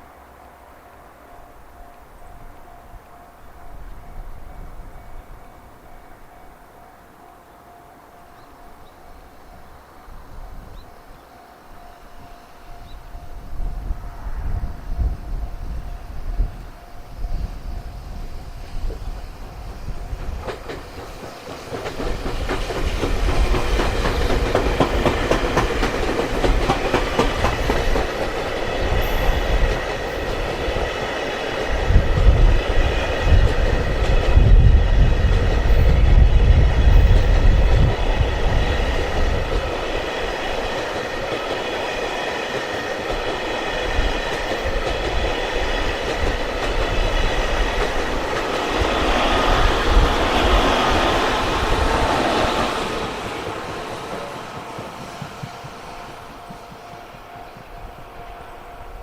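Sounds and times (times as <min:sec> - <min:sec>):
high ringing tones: 0:00.0 - 0:20.4, 0:27.6 - 0:31.6
train wheels clattering over rail joints: 0:18.7 - 0:58.4.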